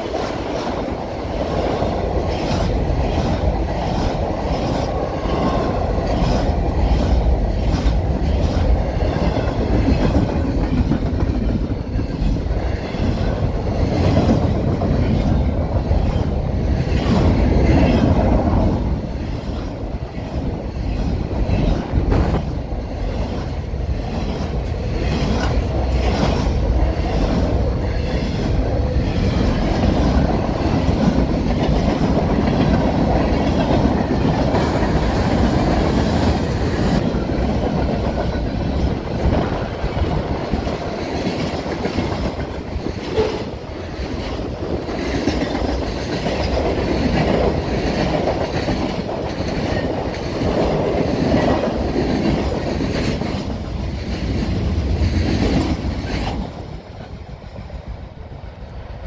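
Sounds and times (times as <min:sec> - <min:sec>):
train passing on rails: 0:00.0 - 0:59.0.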